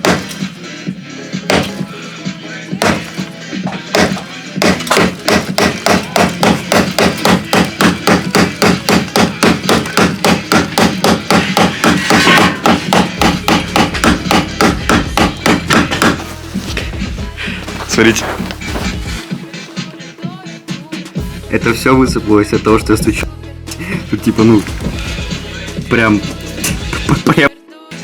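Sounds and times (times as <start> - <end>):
hammer striking steel panel: 4.0 - 16.2.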